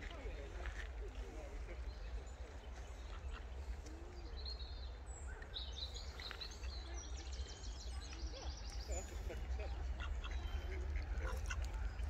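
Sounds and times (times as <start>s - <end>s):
small birds chirping: 0.0s - 12.0s
low outdoor rumble: 8.6s - 12.0s.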